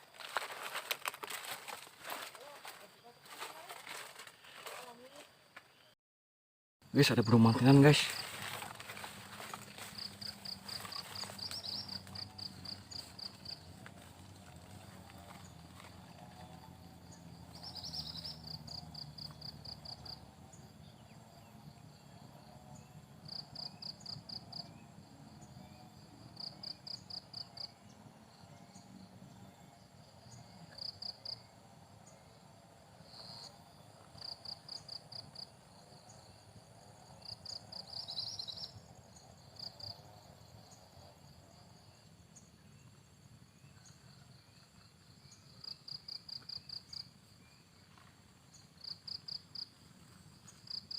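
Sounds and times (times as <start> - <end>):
cricket chirping: 0.0 - 5.9, 6.9 - 50.9
faint background insects: 0.0 - 6.0, 6.8 - 50.9.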